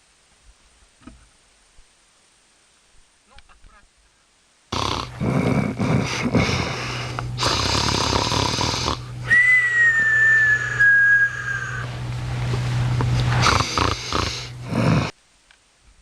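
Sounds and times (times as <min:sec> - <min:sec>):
radio hiss and crackle: 0:00.0 - 0:09.3, 0:11.4 - 0:16.0
steady hum: 0:00.0 - 0:16.0
whistling tone sliding down: 0:09.3 - 0:11.9.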